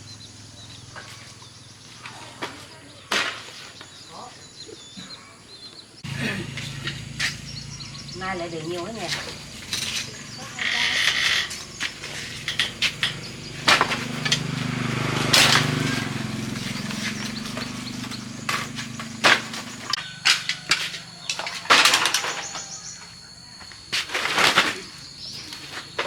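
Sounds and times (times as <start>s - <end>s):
hard objects clattering: 8.7s - 23.0s.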